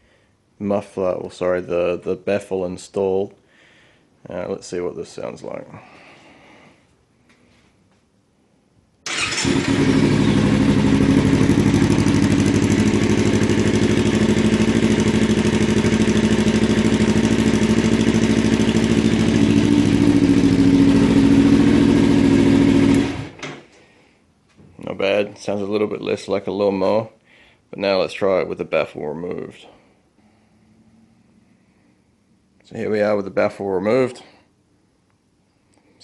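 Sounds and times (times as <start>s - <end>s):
motorcycle engine running: 9.1s - 23.4s.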